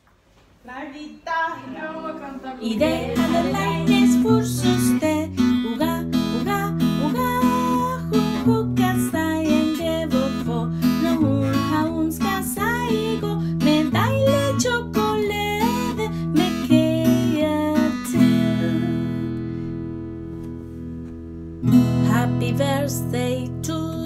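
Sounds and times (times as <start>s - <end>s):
acoustic guitar strumming: 1.7s - 24.0s.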